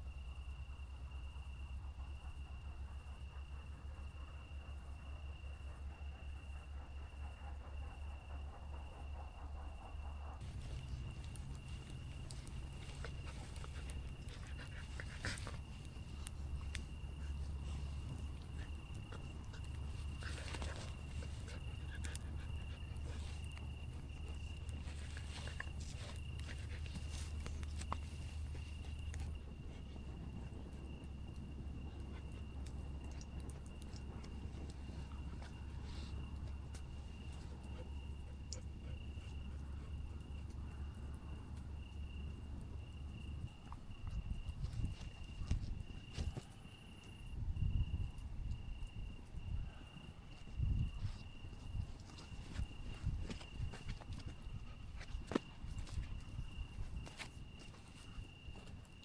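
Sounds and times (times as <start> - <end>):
constant low rumble: 0.0 - 59.0
cricket trilling: 0.0 - 59.0
dog panting: 7.0 - 40.6.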